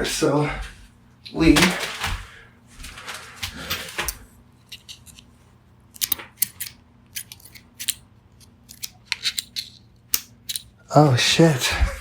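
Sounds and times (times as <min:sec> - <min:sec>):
plastic clicking and cracking: 0:05.9 - 0:10.7.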